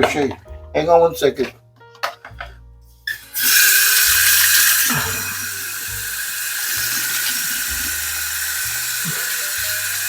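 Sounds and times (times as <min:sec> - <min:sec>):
thin high whine: 0:03.1 - 0:10.0
water running into a sink: 0:03.1 - 0:10.0.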